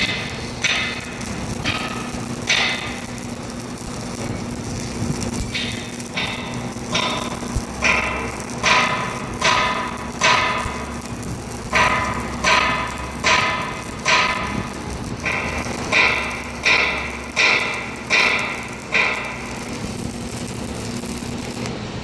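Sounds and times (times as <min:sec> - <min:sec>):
hammer striking steel: 0:00.0 - 0:04.3, 0:05.4 - 0:20.2.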